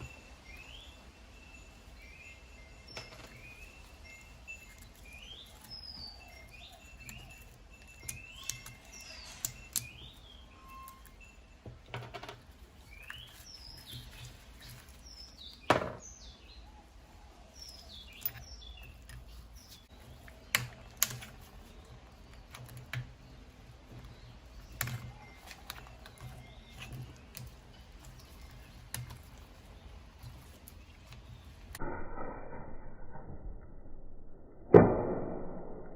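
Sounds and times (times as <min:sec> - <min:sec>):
small birds chirping: 0:00.0 - 0:31.8
tools clicking and knocking: 0:04.7 - 0:16.1, 0:17.7 - 0:31.8.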